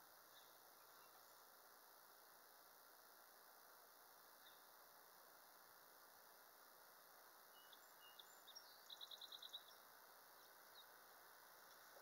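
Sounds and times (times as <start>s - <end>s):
faint outdoor hiss: 0.0s - 12.0s
small bird chirping and trilling: 7.6s - 9.8s.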